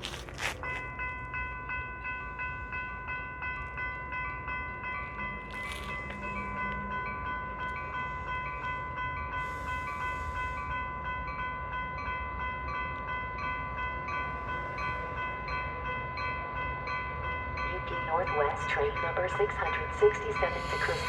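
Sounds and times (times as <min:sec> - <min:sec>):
crossing warning bells ringing: 0:00.0 - 0:21.0
low rumble: 0:19.3 - 0:21.0.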